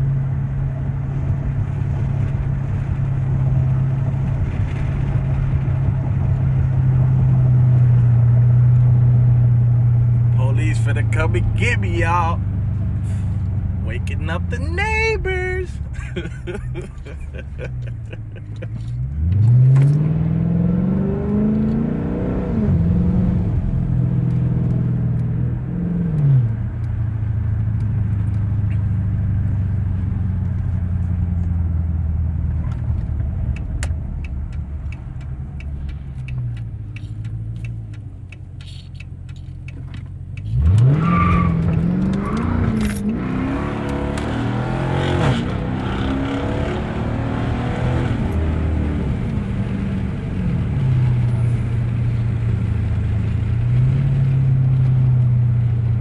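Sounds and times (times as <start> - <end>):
car engine accelerating hard: 17.5 - 38.0, 39.4 - 56.0.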